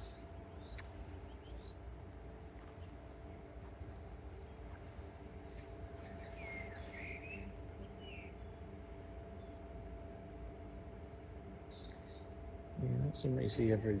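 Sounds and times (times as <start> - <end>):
bird chirping: 0.0 - 1.9, 3.9 - 8.3
low outdoor rumble: 0.0 - 14.0.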